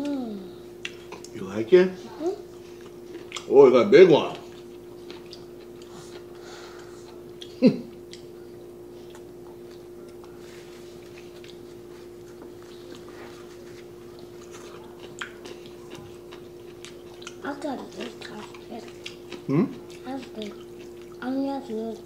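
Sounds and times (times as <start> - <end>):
low steady hum: 0.0 - 22.0
chewing noodles: 11.0 - 22.0.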